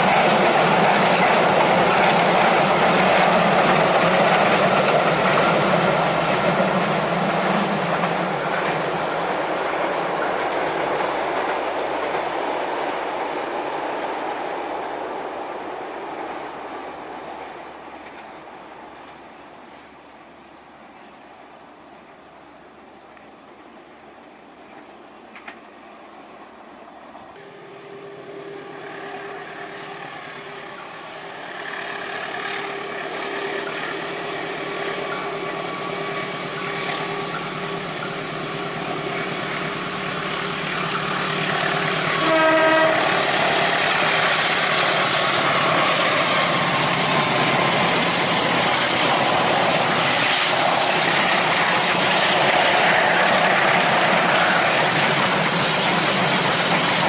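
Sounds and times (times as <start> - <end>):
train wheels rushing on rails: 0.0 - 57.0
train horn blast: 27.4 - 31.4, 41.9 - 44.0.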